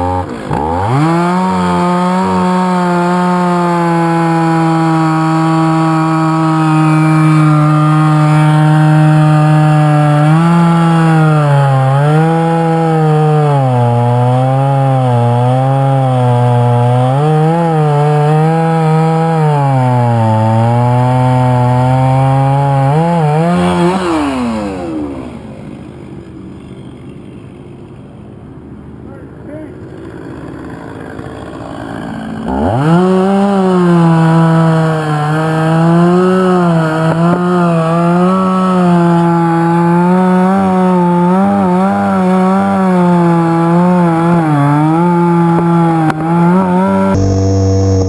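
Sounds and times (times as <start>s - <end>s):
chainsaw cutting wood: 0.0s - 27.2s, 29.3s - 48.0s.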